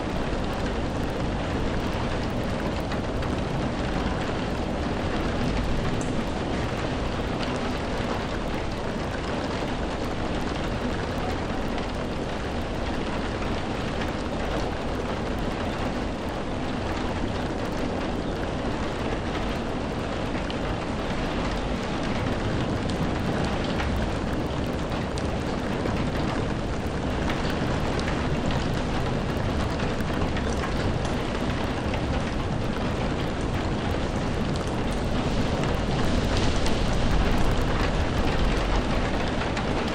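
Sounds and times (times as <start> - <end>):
rain drops ticking: 0.0 - 39.9
rain hissing: 19.8 - 39.9.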